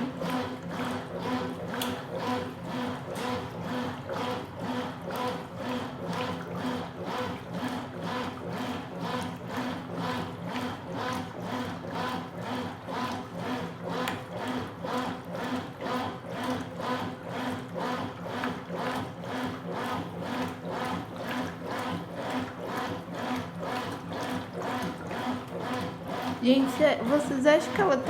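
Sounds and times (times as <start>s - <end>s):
washing machine agitator swishing water: 0.0s - 28.0s.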